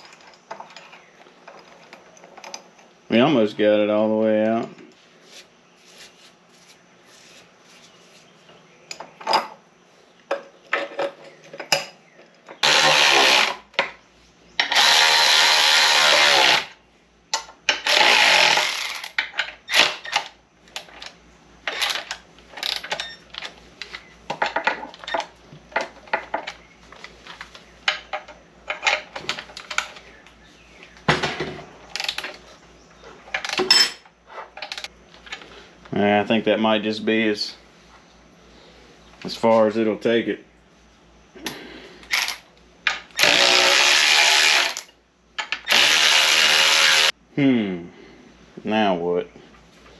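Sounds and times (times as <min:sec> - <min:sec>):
power tool running: 0:12.6 - 0:13.7, 0:14.6 - 0:16.8, 0:17.8 - 0:19.1, 0:43.2 - 0:44.8, 0:45.7 - 0:47.1.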